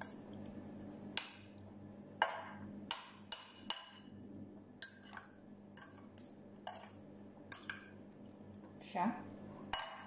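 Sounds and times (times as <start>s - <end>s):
metal spoon clinking against glass bowl: 6.6s - 7.8s, 9.7s - 10.0s.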